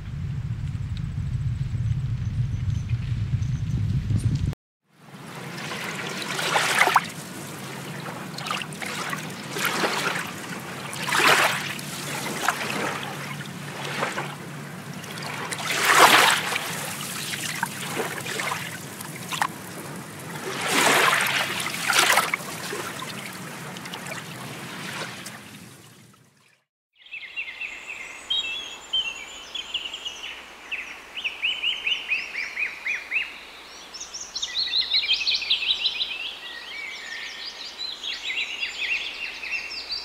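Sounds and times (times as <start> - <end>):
water trickling and splashing: 5.0 - 26.7.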